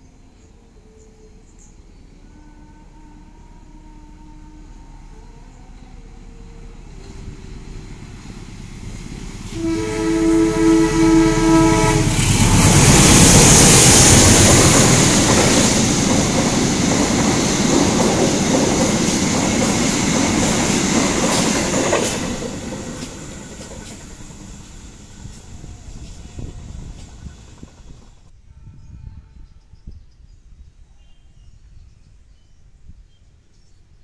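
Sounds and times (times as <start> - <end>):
train horn: 2.2 - 7.2, 9.5 - 16.0, 28.3 - 29.9
train wheels rushing on rails: 6.4 - 28.3.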